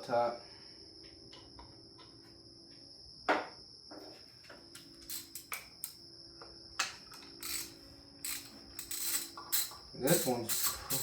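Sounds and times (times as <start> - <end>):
wrench clinking on bolts: 5.1 - 6.0, 7.4 - 11.0.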